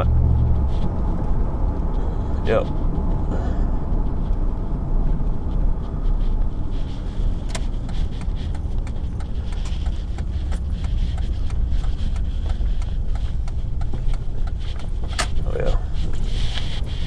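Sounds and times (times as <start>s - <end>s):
car engine and road noise: 0.0s - 17.0s
sharp clicks and ticks: 3.8s - 17.0s.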